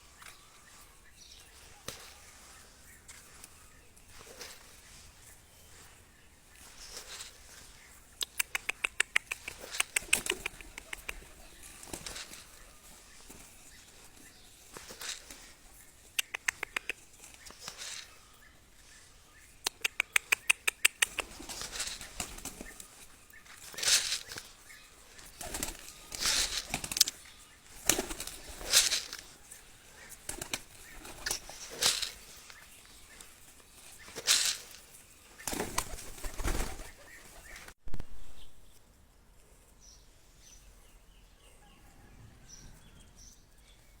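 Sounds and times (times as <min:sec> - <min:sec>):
faint bird chirps: 0:00.0 - 0:38.8, 0:39.9 - 0:44.0
pigeon wings flapping: 0:06.6 - 0:14.0, 0:16.1 - 0:18.2, 0:19.7 - 0:37.7.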